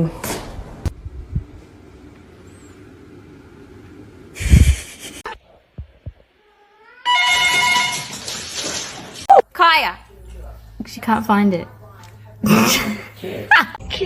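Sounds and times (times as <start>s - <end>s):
electronic ringing tone: 7.1s - 8.0s.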